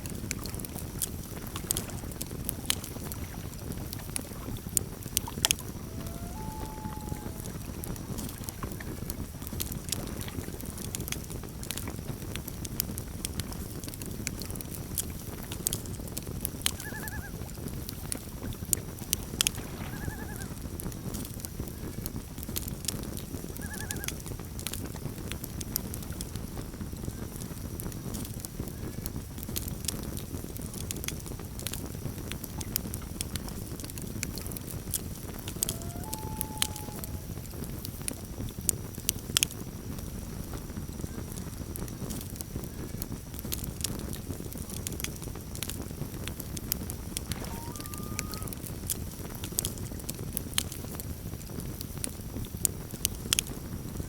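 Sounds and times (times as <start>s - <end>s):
low rush of burning wood: 0.0s - 16.8s, 17.4s - 54.0s
campfire crackling and popping: 0.0s - 54.0s
loon calls: 5.6s - 8.4s, 16.7s - 17.4s, 19.6s - 20.6s, 23.6s - 24.2s, 35.2s - 37.4s, 47.3s - 48.8s.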